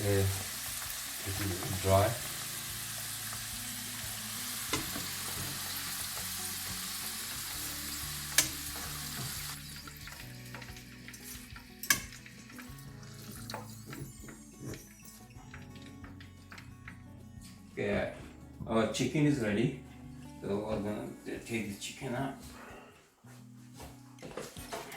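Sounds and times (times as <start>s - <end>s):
oil sizzling: 0.0s - 16.7s
utensil clicking against pan: 8.3s - 8.8s, 10.5s - 12.7s.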